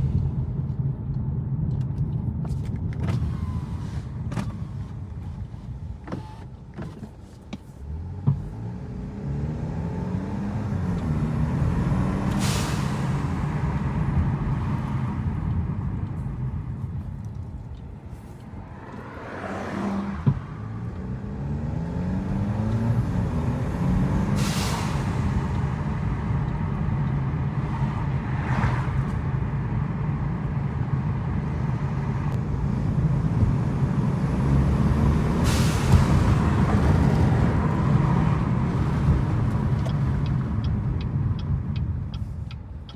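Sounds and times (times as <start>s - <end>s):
car engine revving through gears: 7.8s - 17.6s, 18.2s - 42.7s.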